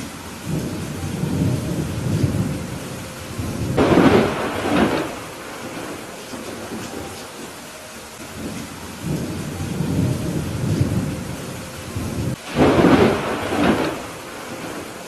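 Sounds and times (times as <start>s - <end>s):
rolling thunder rumble: 0.0s - 15.0s
steady rain: 0.0s - 15.0s
loud thunderclap: 0.4s - 6.8s, 8.4s - 15.0s.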